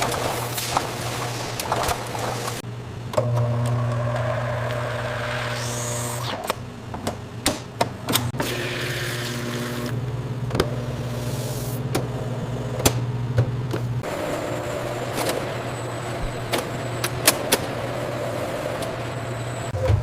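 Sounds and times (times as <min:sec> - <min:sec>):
machinery humming: 0:08.0 - 0:20.0.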